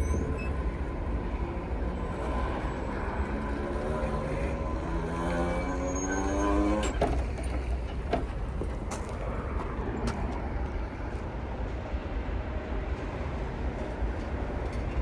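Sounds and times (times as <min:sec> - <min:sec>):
wheels clunking over rail joints: 0:00.0 - 0:09.8
freight train rumbling: 0:00.0 - 0:15.0.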